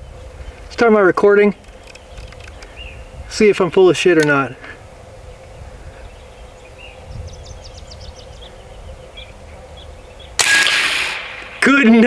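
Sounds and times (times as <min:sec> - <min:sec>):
small bird chirping: 0:01.6 - 0:03.2, 0:05.2 - 0:10.4.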